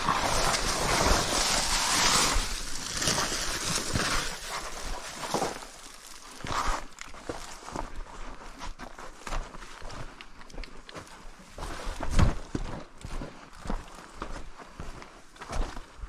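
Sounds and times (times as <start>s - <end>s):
dry grass rustling underfoot: 0.0s - 10.3s.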